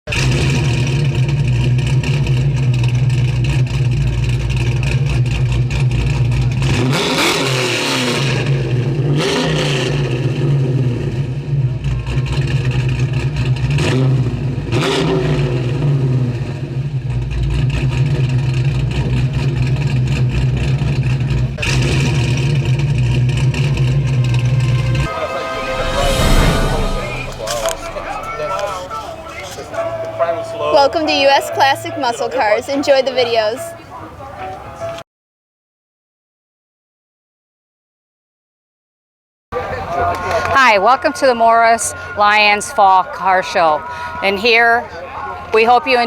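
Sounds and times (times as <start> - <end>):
car engine droning: 0.1 - 33.2.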